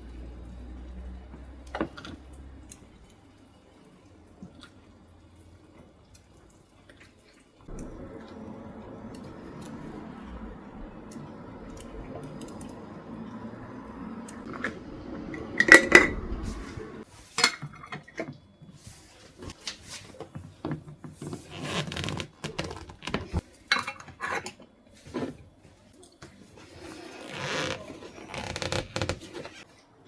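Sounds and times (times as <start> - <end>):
steady low hiss: 7.7 - 17.0
dishes and cutlery clinking: 23.7 - 24.7.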